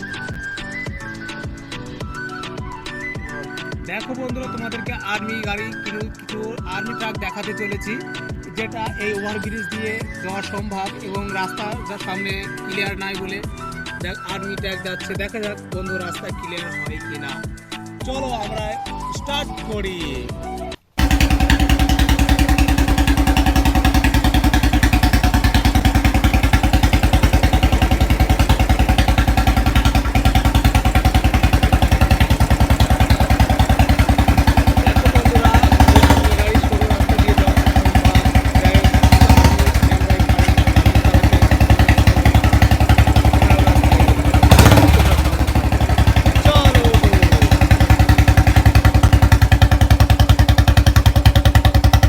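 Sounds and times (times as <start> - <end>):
engine revving: 21.0 - 52.0.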